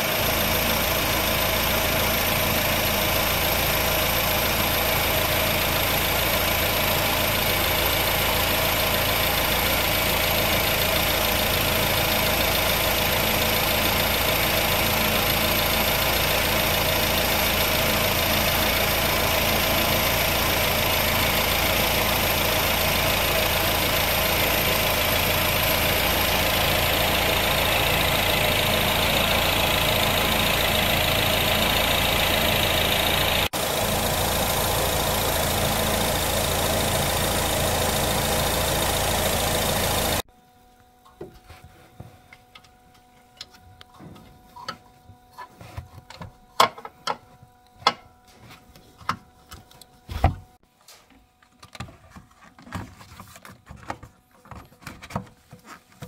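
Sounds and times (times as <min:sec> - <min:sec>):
car engine idling: 0:00.0 - 0:40.3.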